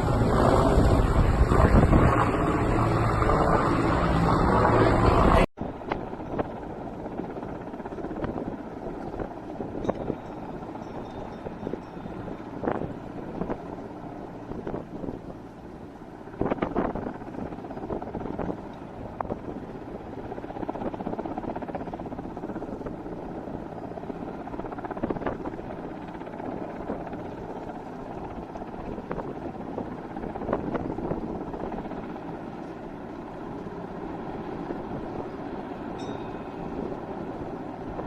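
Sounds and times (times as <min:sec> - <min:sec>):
distant helicopter rotor drone: 0:00.0 - 0:38.0.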